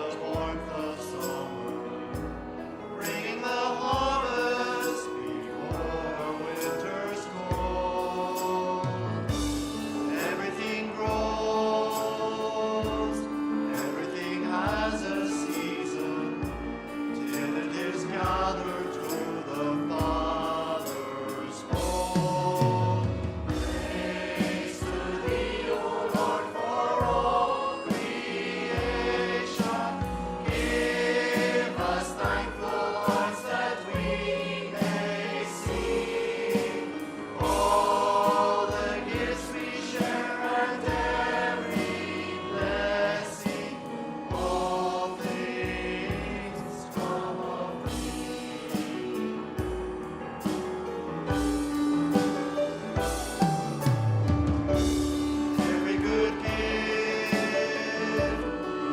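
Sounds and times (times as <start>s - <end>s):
group singing a hymn: 0.0s - 58.9s
praise band playing: 0.0s - 58.9s
drum beats: 9.1s - 11.6s, 21.7s - 58.7s.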